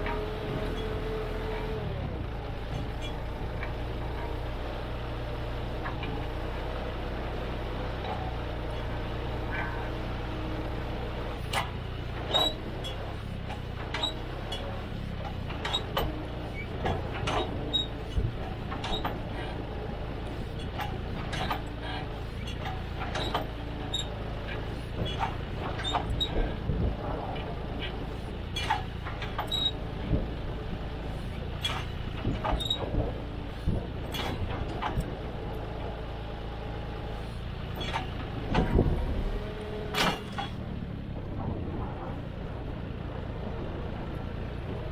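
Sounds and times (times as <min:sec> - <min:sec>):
tractor engine running: 0:00.0 - 0:44.9.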